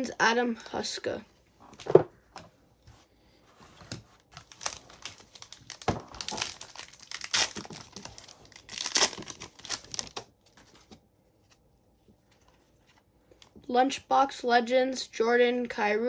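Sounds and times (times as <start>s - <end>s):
plastic foil wrapper tearing: 4.4s - 10.2s.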